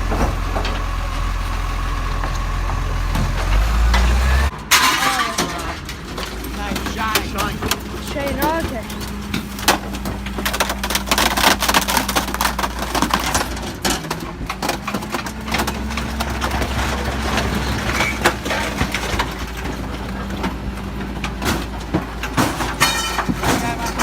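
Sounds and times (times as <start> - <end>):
truck engine humming: 0.0 - 24.0
compactor cracking and snapping: 4.7 - 20.6.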